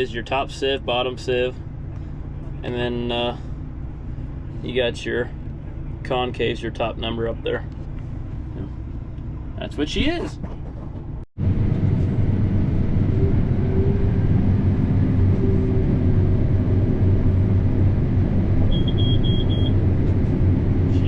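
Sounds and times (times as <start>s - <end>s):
combine harvester drone: 11.4s - 21.0s
short high beeps: 18.7s - 19.7s.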